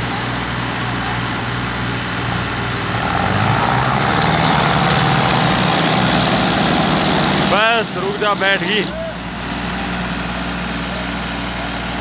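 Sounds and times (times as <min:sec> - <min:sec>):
tractor diesel engine straining: 0:00.0 - 0:12.0.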